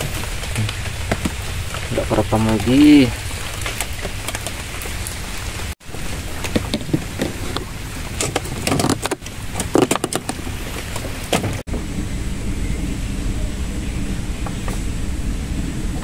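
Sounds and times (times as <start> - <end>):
rain on river and wooden boat: 0.0 - 16.0
steady low rumble: 10.3 - 16.0.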